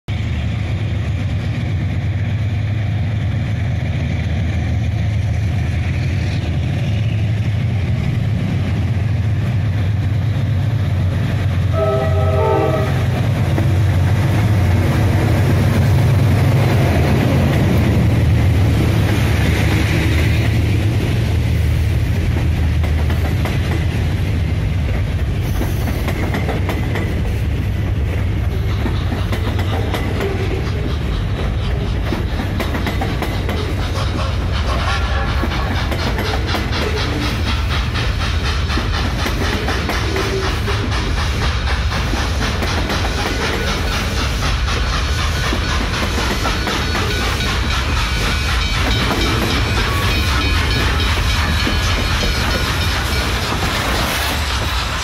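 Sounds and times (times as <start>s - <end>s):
train rumble: 0.1s - 55.0s
train horn tones: 11.7s - 13.3s.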